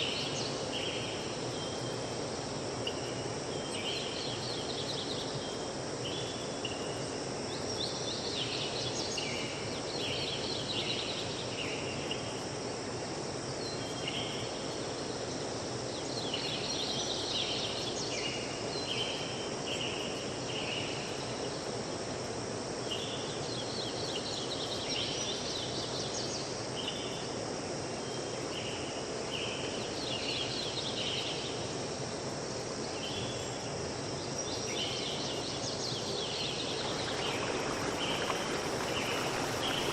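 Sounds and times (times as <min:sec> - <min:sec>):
steady rushing noise: 0:36.4 - 0:39.9.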